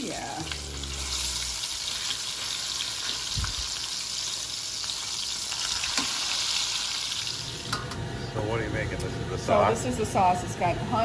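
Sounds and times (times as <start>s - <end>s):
pork chops sizzling in a pan: 0.0s - 7.8s.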